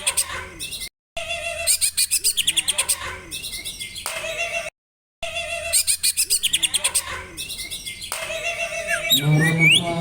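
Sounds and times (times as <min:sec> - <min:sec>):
songbird chirping and trilling: 0:05.7 - 0:10.0.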